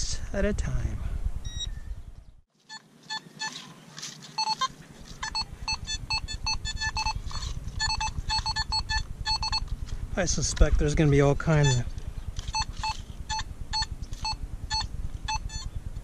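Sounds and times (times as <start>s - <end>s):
wind rumble on microphone: 0.0s - 2.4s, 5.5s - 16.0s
metal detector beeps: 1.5s - 1.8s, 2.7s - 3.8s, 4.4s - 9.7s, 11.5s - 15.7s.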